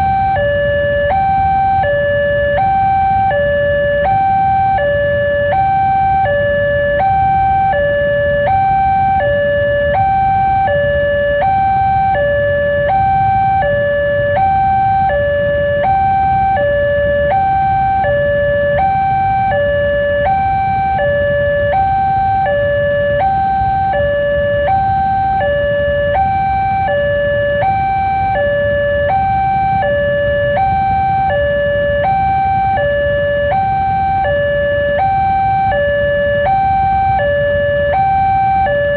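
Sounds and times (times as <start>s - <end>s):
level-crossing two-tone alarm: 0.0s - 38.9s.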